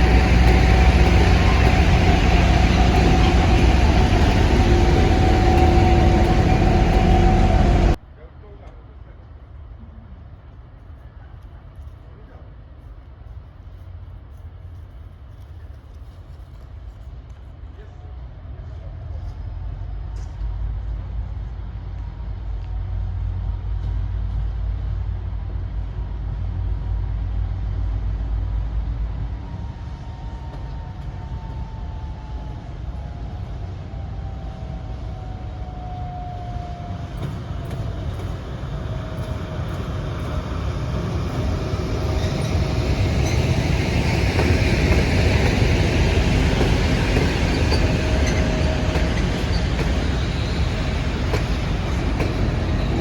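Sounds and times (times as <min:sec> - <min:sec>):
wheels rolling on rail: 0:00.0 - 0:08.0, 0:35.2 - 0:53.0
train rumble: 0:00.0 - 0:53.0.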